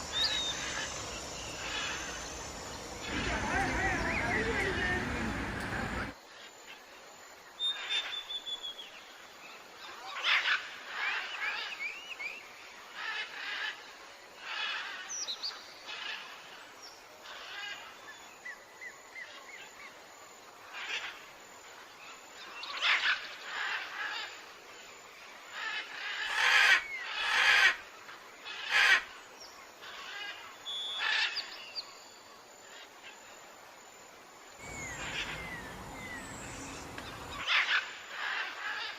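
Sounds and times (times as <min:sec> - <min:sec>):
birds chirping and calling: 0:00.0 - 0:06.1, 0:34.6 - 0:38.9.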